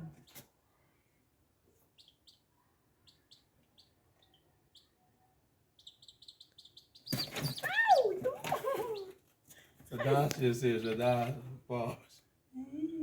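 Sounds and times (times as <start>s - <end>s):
small bird chirping: 1.7s - 9.2s.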